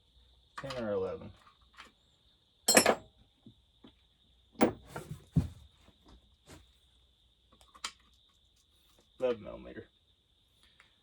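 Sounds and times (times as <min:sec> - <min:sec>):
metal tools clinking: 0:02.7 - 0:03.0.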